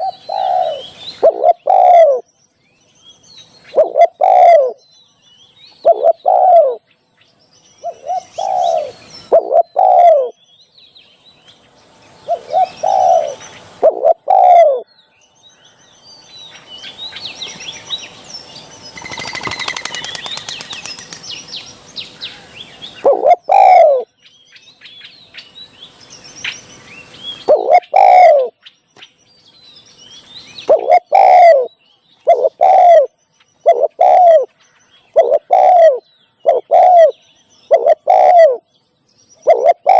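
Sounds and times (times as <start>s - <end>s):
dove cooing: 0.0s - 2.2s, 3.7s - 4.8s, 5.8s - 6.8s, 7.8s - 10.3s, 12.3s - 14.8s, 19.0s - 21.4s, 23.0s - 24.1s, 27.5s - 28.5s, 30.7s - 31.7s, 32.3s - 33.1s, 33.7s - 34.5s, 35.2s - 38.6s, 39.5s - 39.9s
birds chirping: 0.0s - 39.9s.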